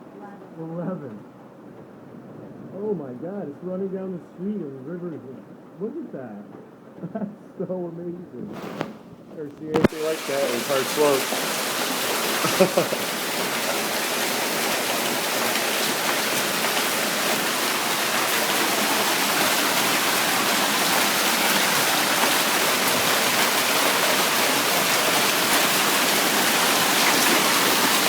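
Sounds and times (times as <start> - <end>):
heavy hailstorm downpour: 9.7 - 28.0
water running down street: 9.8 - 28.0.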